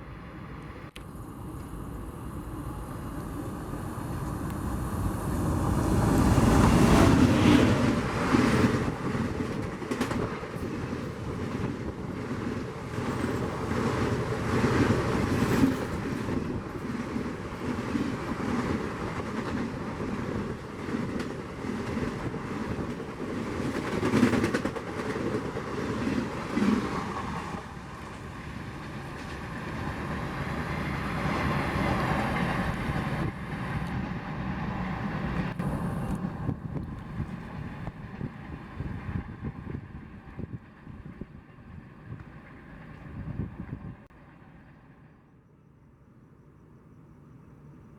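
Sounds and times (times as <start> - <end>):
passenger train passing: 0.0 - 45.7
wheels clacking over rail joints: 6.4 - 38.4.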